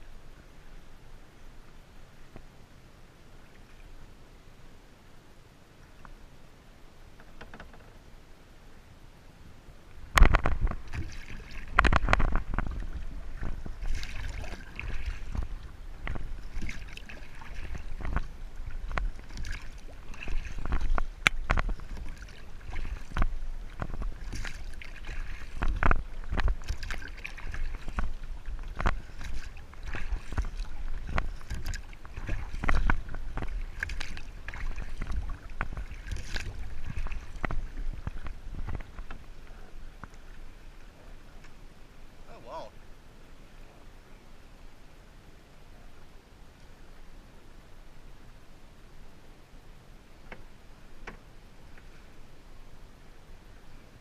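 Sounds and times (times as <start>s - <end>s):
wind rumble on microphone: 7.1s - 42.2s
paddle strokes splashing: 9.8s - 42.8s
water slapping against hull: 10.0s - 41.6s.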